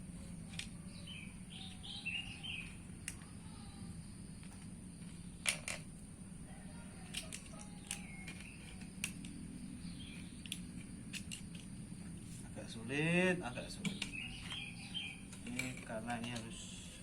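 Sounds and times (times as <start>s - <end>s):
sharp clicks and knocks: 13.8s - 14.6s.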